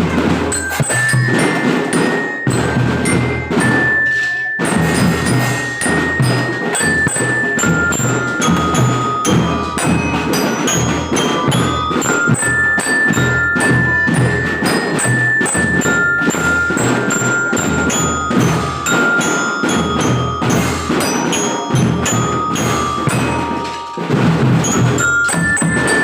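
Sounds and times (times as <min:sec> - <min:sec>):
bell-like melody: 0:00.0 - 0:26.0
drums keeping steady beat: 0:00.0 - 0:26.0.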